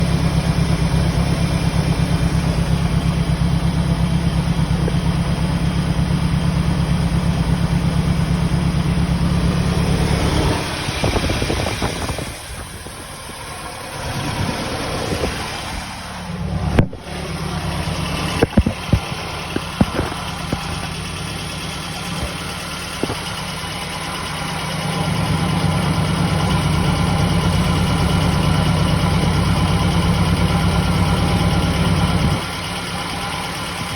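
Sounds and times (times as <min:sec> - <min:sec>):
engine idling: 0:00.0 - 0:33.9
sharp clicks or knocks: 0:16.7 - 0:17.2, 0:18.2 - 0:21.0.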